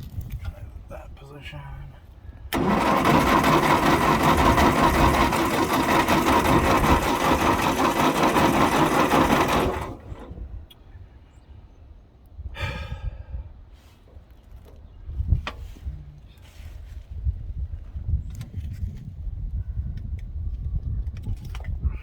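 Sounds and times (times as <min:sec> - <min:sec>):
starter motor cranking engine: 0:02.5 - 0:10.6.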